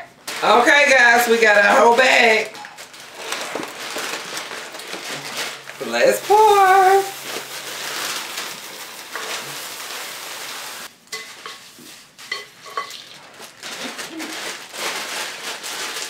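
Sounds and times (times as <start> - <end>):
cereal pouring into bowl: 2.9 - 10.9.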